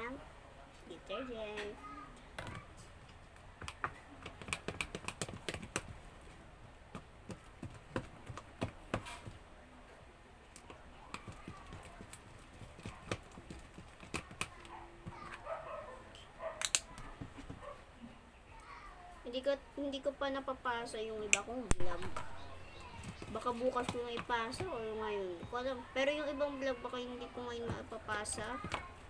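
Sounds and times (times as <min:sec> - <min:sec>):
faint voices: 0:08.6 - 0:29.0.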